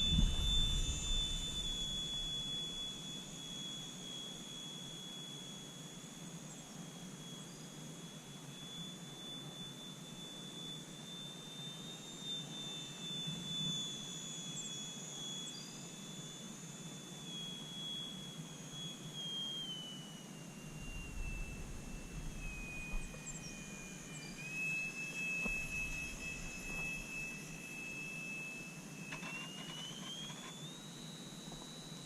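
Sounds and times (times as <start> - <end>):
rc airplane motor whining: 0.0 - 32.0.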